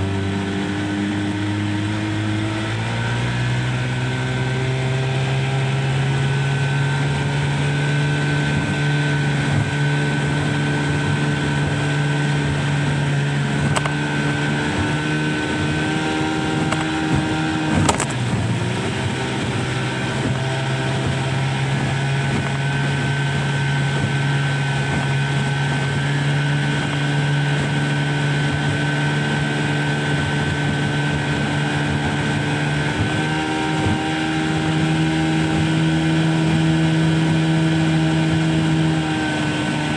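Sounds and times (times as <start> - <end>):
motorboat engine running: 0.0 - 39.9.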